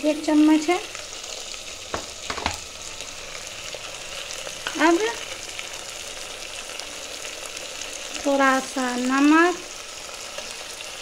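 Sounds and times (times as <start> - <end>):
meat frying in oil: 0.0 - 11.0
sharp knocks: 1.9 - 2.6.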